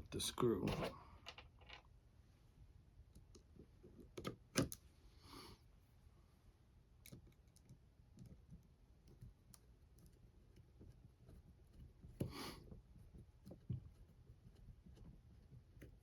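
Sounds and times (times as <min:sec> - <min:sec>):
clicks of tools and small parts: 0:00.7 - 0:01.9.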